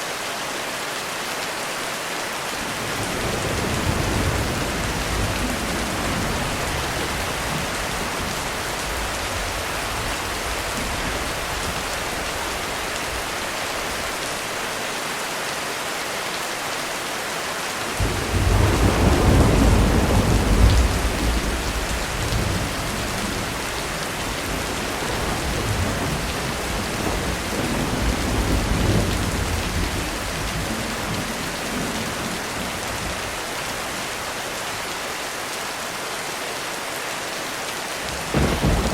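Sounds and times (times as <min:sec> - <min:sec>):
heavy rain on a roof: 0:00.0 - 0:38.9
thunder rolling: 0:03.0 - 0:12.0, 0:18.0 - 0:33.2, 0:38.3 - 0:38.9.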